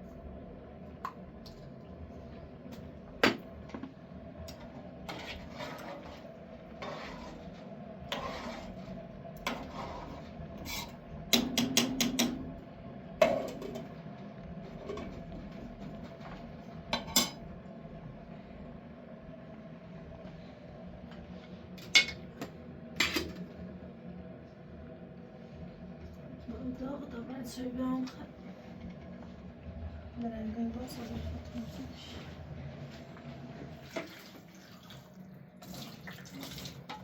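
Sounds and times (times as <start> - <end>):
dishes and utensils clinking: 17.0 - 17.4, 21.8 - 22.2
dishes clattering: 17.0 - 17.4.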